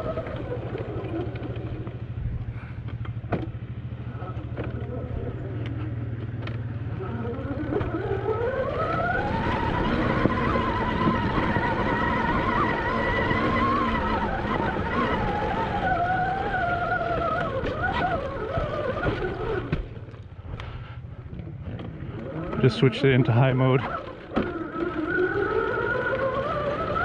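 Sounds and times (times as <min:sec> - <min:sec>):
wind buffeting microphone: 0:00.0 - 0:02.8
electric motor whining: 0:06.4 - 0:20.2, 0:21.4 - 0:27.0.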